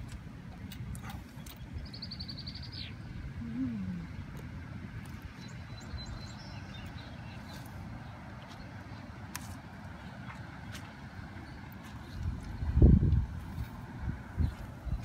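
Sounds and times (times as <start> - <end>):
songbird trilling: 1.4 - 3.1
steady low rumble: 9.8 - 15.0.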